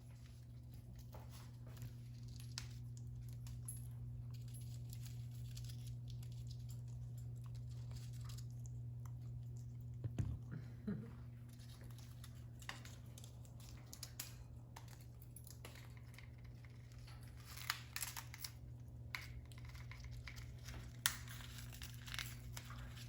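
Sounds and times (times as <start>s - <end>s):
steady low hum: 0.0s - 23.0s
parrot tearing at toy: 4.2s - 9.6s, 11.5s - 23.0s.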